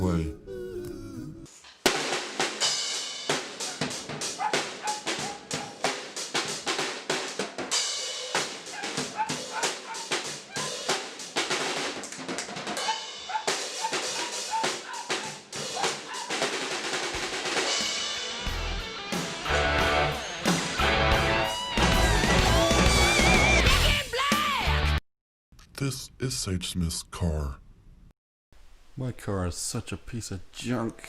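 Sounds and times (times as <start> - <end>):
drum kit playing busy rhythm: 1.8 - 24.8.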